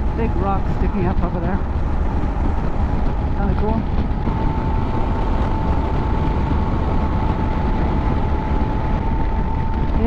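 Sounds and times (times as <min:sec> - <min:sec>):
motorcycle engine drone: 0:00.0 - 0:10.0
wind rush on microphone: 0:00.0 - 0:10.0
thin steady whine: 0:03.4 - 0:10.0.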